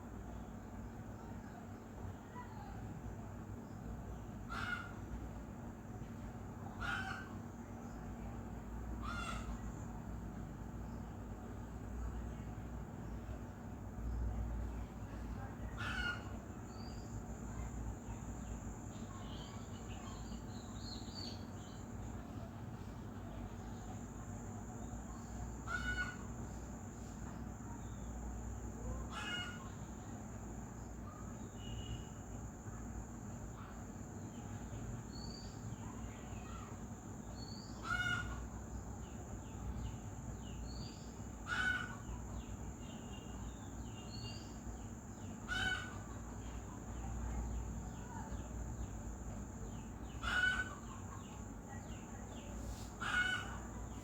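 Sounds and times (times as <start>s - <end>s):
harsh loud bird calls: 6.8s - 7.5s, 9.0s - 9.8s, 15.8s - 17.2s, 25.2s - 26.5s, 28.9s - 29.9s, 36.4s - 46.5s, 49.6s - 54.0s.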